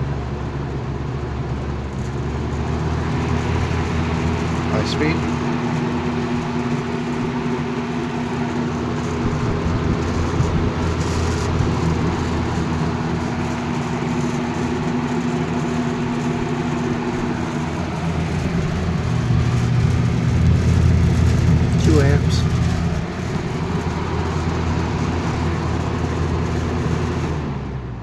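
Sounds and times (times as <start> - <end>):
fan motor humming: 0.0 - 27.6
rush of air from fan: 2.6 - 27.7
fan grill rattling: 2.9 - 27.3.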